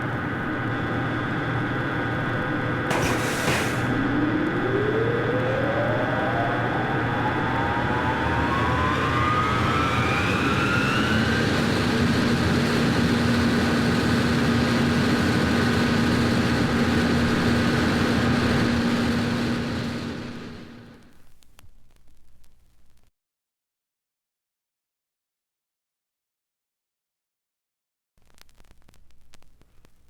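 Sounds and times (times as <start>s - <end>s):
machine rushing with whine: 2.9s - 20.8s.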